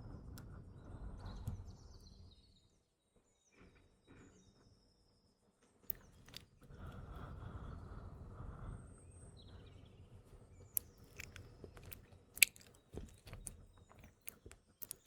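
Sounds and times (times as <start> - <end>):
mouth clicks and smacks: 10.8 - 15.0.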